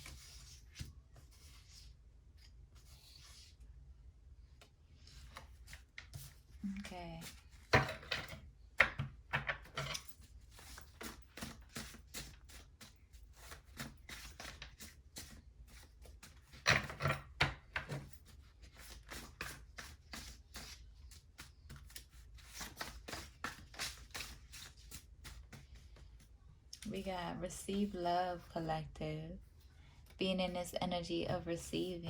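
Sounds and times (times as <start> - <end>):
cards being shuffled: 17.8 - 26.2.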